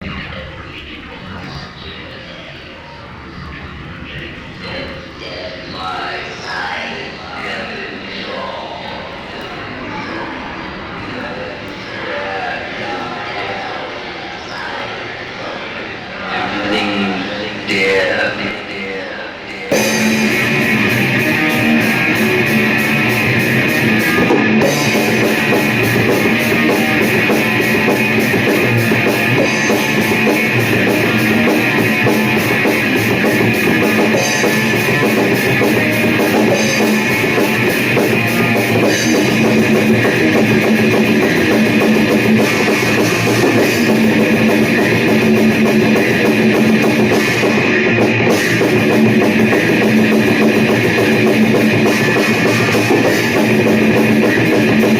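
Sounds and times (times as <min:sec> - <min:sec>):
heavy rock music: 0:19.7 - 0:54.9.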